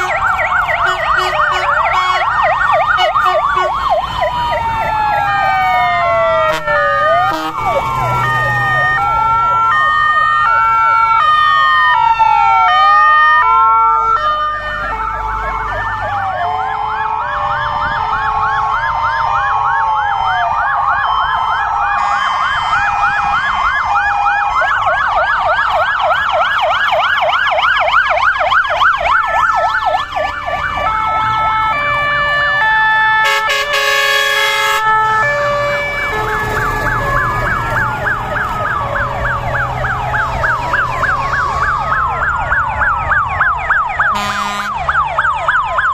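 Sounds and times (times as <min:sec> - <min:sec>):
fire engine sirens wailing: 0:00.0 - 0:45.9
short horn blast: 0:07.3 - 0:07.7, 0:33.2 - 0:34.8, 0:44.2 - 0:44.8.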